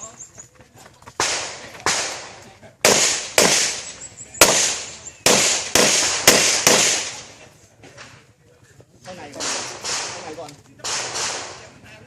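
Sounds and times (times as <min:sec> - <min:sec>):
handgun shots with echo: 0:02.9 - 0:03.8, 0:04.4 - 0:07.2, 0:09.4 - 0:11.7.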